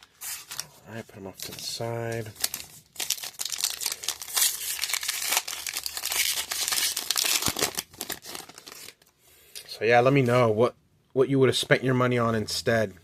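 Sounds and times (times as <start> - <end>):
plastic wrapper crinkling and tearing: 0.0 - 0.7, 1.4 - 9.1.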